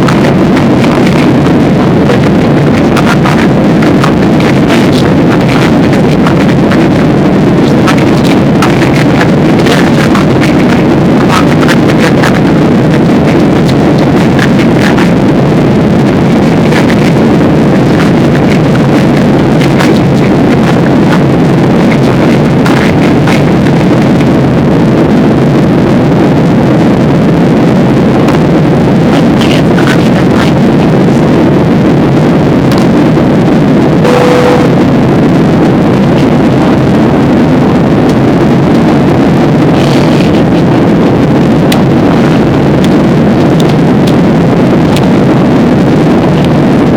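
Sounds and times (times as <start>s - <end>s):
airliner cabin engine noise: 0.0s - 46.9s
short steady tone: 34.0s - 34.9s.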